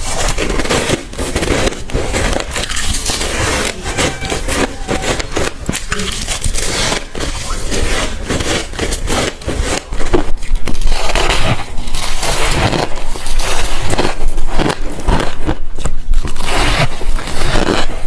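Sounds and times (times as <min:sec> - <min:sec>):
teeth crunching ice: 0:00.0 - 0:18.0.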